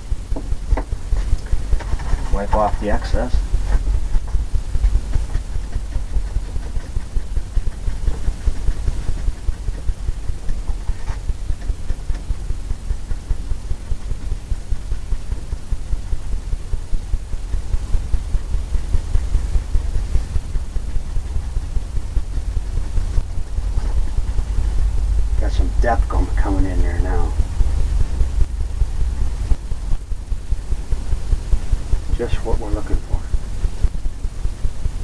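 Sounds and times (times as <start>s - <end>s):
paintbrush scrubbing on canvas: 1.0s - 12.3s.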